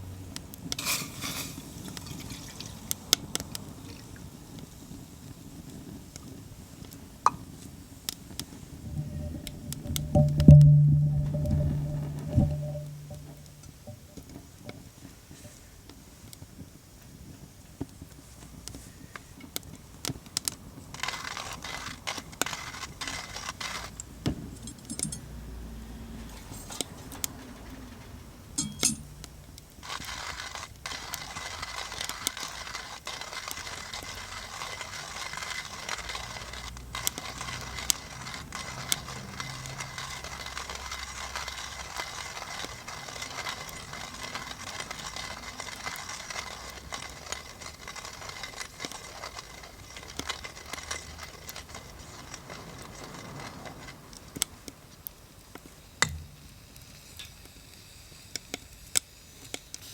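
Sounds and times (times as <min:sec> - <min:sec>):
coffee grinder crunching beans: 0:00.8 - 0:03.0, 0:20.4 - 0:24.2, 0:29.0 - 0:54.1
small metallic clinks: 0:08.8 - 0:14.0, 0:24.0 - 0:25.5, 0:28.6 - 0:29.6.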